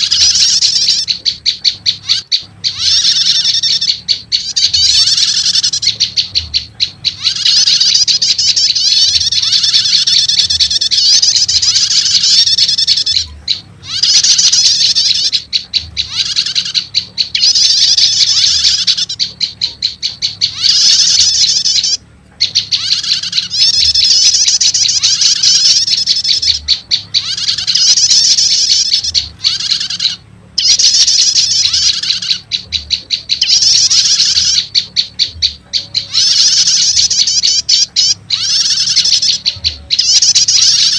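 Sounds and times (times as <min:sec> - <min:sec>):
high bird chirping: 0:00.0 - 0:40.9.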